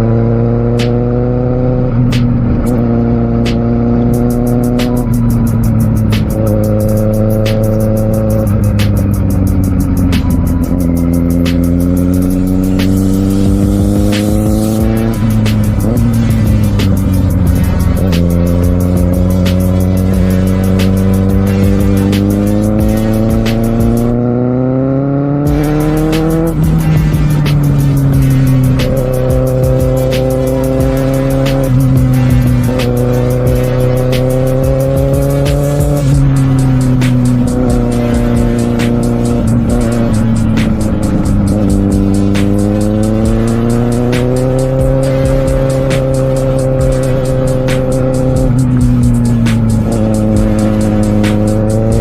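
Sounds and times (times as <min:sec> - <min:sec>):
music with steady beat: 0:00.0 - 0:24.7, 0:25.3 - 0:52.0
motorcycle engine revving: 0:00.0 - 0:52.0.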